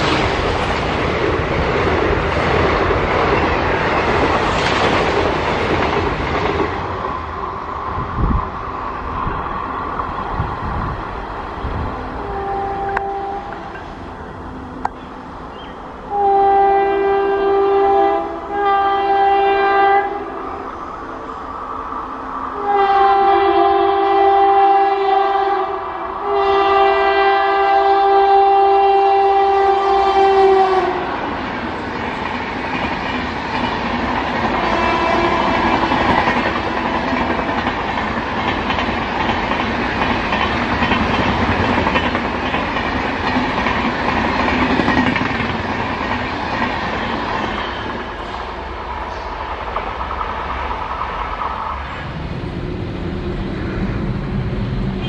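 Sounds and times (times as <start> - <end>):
wheels clickety-clacking over rail joints: 0.0 - 7.3, 31.2 - 51.9
train horn blasts: 12.2 - 13.9, 16.1 - 20.6, 22.6 - 31.2, 34.6 - 37.5.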